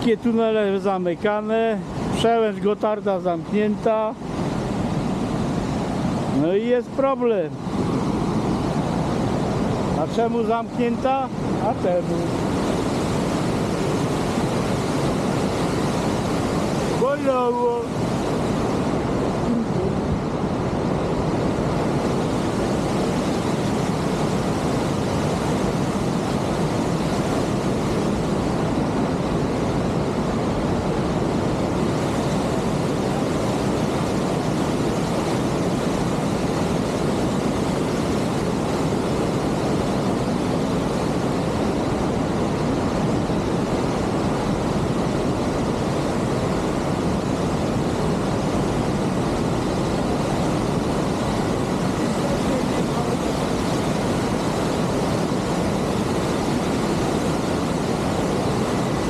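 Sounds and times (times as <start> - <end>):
wind rush: 0.0 - 59.0.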